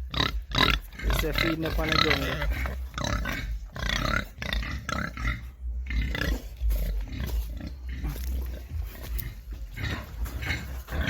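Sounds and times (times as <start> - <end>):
pigs grunting: 0.0 - 11.0.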